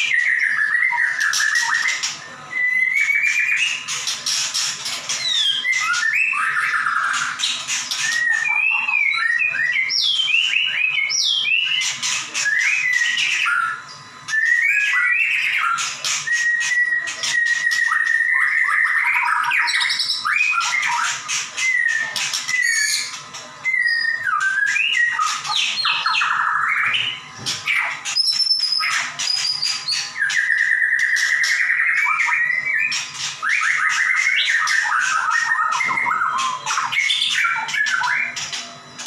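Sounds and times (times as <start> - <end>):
bird singing whistles and trills: 0.0 - 39.0.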